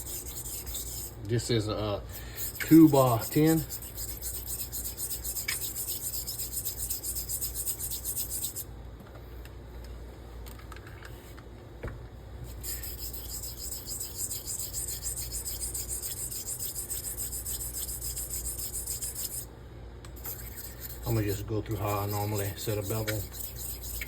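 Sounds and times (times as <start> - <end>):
razor blade scraping on stone: 0.0 - 1.2, 2.1 - 8.7, 12.5 - 19.5, 20.2 - 24.0.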